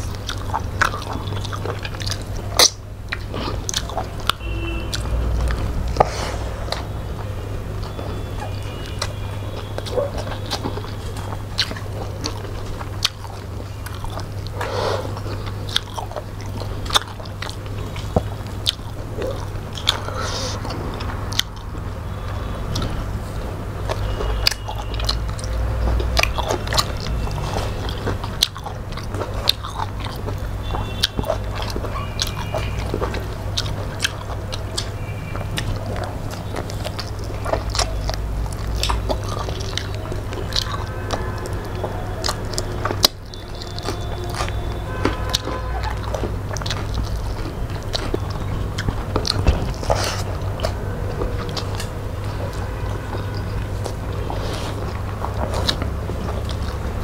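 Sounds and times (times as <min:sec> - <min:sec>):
chewing and mouth smacks: 0:00.0 - 0:57.0.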